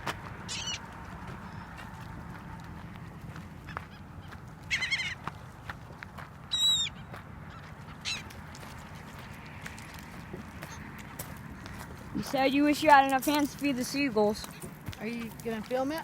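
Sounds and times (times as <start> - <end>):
seagulls calling: 0.0 - 2.4, 3.2 - 5.4, 6.4 - 9.4.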